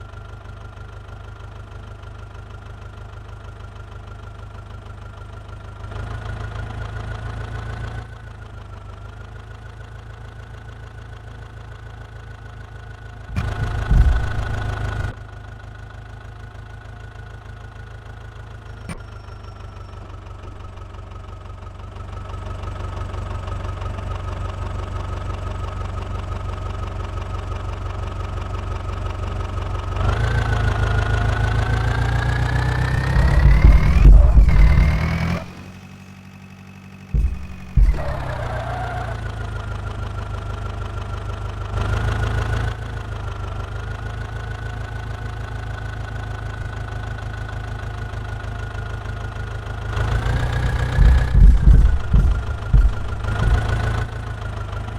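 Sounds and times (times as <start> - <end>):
heavy thumps: 13.3 - 15.1, 20.4 - 20.8, 32.9 - 35.6, 37.2 - 38.6, 50.6 - 54.2
diesel engine revving: 13.3 - 15.2, 30.0 - 36.1, 37.2 - 40.0, 49.8 - 54.9.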